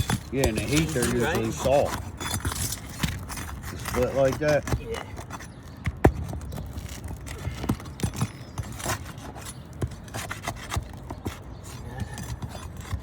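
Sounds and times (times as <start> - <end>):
shingles splitting: 0.0 - 13.0
tool scraping roof shingles: 0.0 - 13.0.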